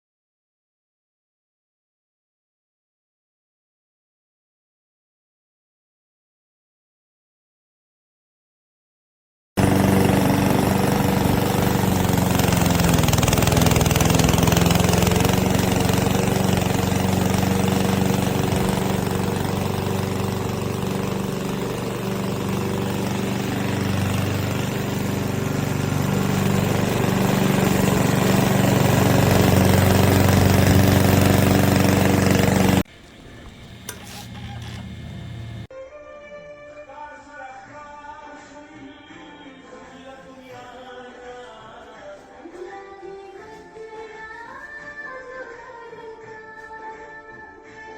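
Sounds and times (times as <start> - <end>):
lawn mower engine running: 9.6 - 35.7.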